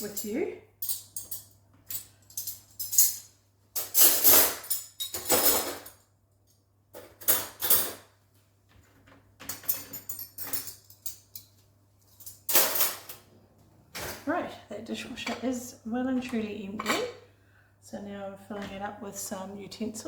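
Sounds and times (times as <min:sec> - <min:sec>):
dishes and cutlery clinking: 0:00.0 - 0:06.0, 0:07.0 - 0:08.2, 0:09.4 - 0:11.6, 0:12.2 - 0:13.2.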